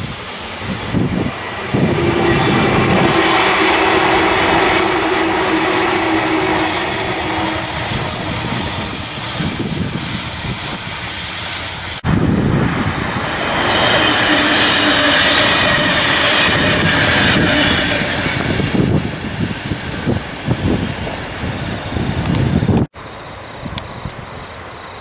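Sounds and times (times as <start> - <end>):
high hiss: 0.0 - 12.0
double-deck train rolling past: 0.0 - 25.0
train wheel and rail noise: 0.0 - 25.0.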